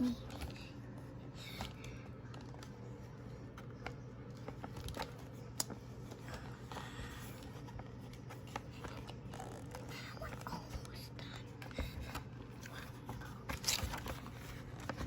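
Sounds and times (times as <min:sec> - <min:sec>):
paper rustling: 0:11.7 - 0:15.0.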